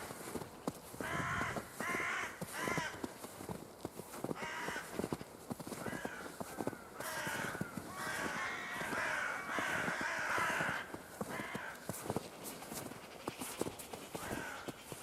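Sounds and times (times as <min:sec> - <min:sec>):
footsteps crunching in snow: 0:00.0 - 0:15.0
crows cawing: 0:00.1 - 0:15.0.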